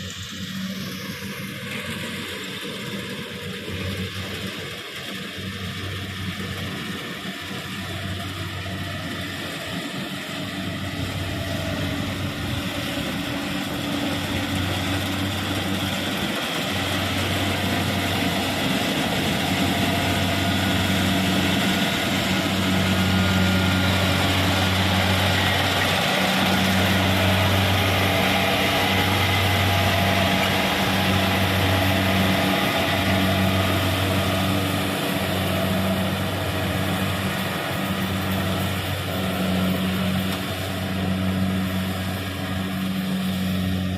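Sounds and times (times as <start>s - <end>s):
combine harvester humming: 0.0s - 43.9s.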